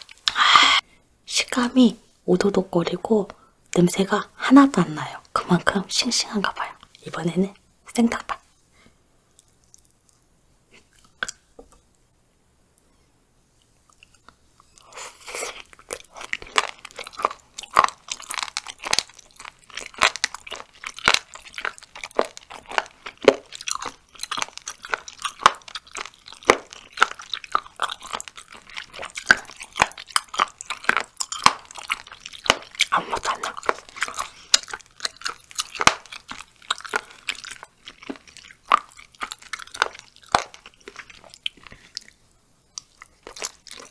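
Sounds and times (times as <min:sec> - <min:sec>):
crunchy chewing: 0:09.3 - 0:11.8, 0:13.9 - 0:43.9.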